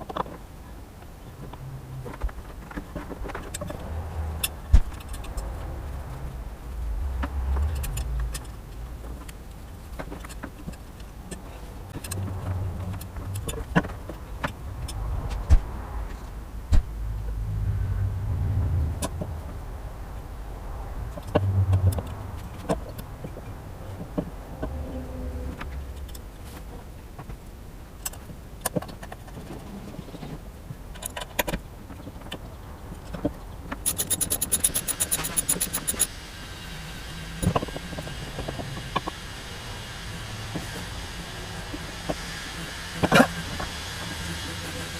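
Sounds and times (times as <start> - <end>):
low rumble: 3.6 - 10.0, 11.7 - 27.2
fast ratcheting clicks: 33.8 - 36.1
hand tools and metal parts clinking: 33.8 - 36.1.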